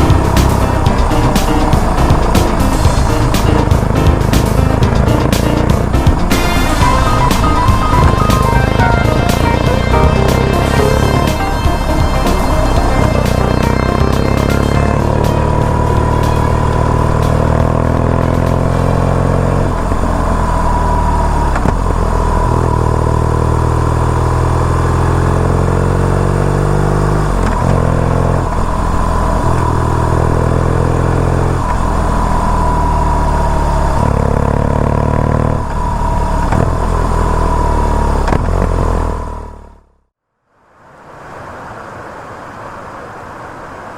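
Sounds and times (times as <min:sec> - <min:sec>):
steady high whine: 0:00.0 - 0:25.2
motorcycle engine shifting gears: 0:00.0 - 0:40.0.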